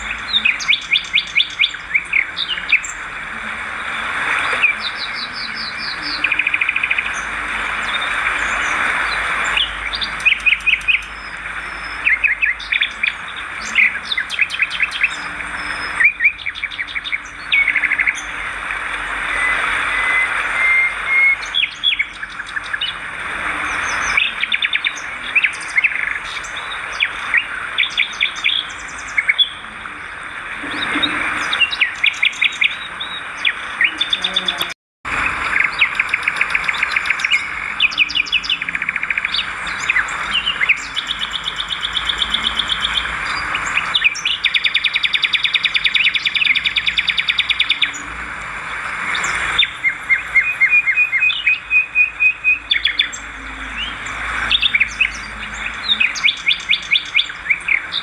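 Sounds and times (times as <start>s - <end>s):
swiftlets chirping trills: 39.2s - 52.0s.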